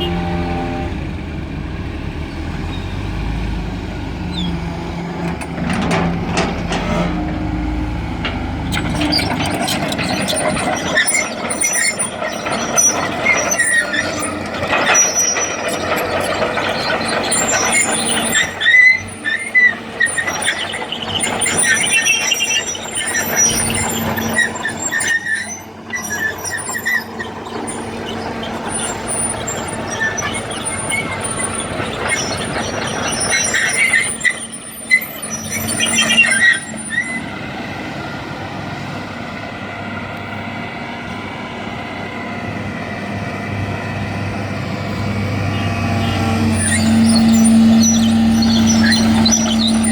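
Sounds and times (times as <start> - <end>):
high metallic squeals: 0.0 - 1.0, 4.3 - 37.5, 44.9 - 49.9
heavy machinery engine running: 0.0 - 49.9.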